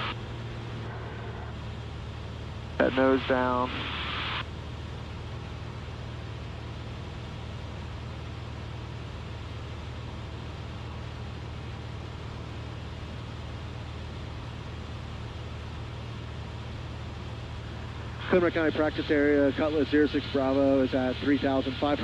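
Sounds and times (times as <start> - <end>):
light aircraft engine droning: 0.0 - 22.0.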